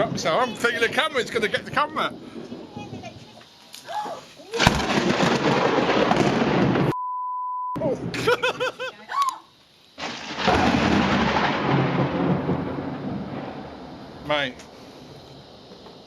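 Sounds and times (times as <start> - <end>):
rain: 0.0 - 6.8, 9.8 - 16.0
thunder rumbling: 0.0 - 7.0, 10.0 - 16.0
censor beep: 6.9 - 7.8.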